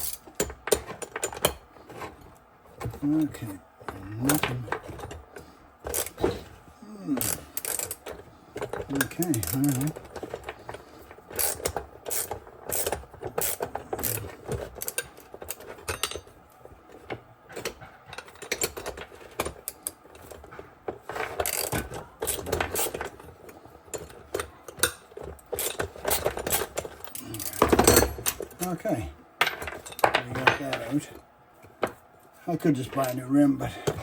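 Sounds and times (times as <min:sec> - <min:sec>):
ratchet wrench clicking: 0:11.4 - 0:14.2.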